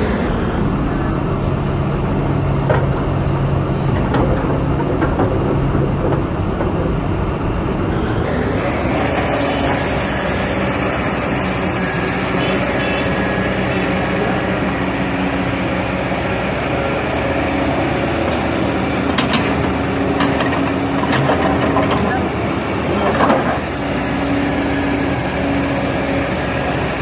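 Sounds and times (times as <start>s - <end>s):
excavator diesel engine running: 0.0s - 27.0s
short knocks and clanks: 2.6s - 8.0s.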